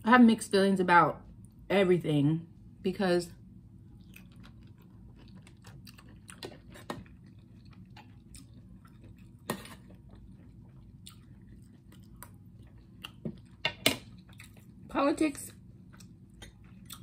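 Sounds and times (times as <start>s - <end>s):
chewing and mouth sounds: 3.9s - 14.9s, 15.8s - 17.0s.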